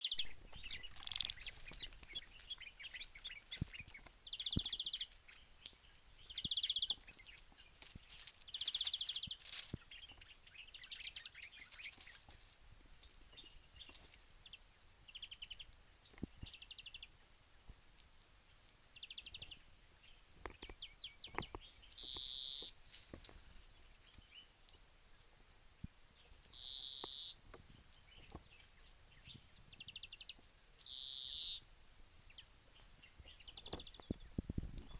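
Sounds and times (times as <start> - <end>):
buzzy bird trills: 0.0 - 5.0, 5.9 - 24.2, 26.5 - 29.6, 30.8 - 31.6
songbirds chirping: 0.0 - 34.9.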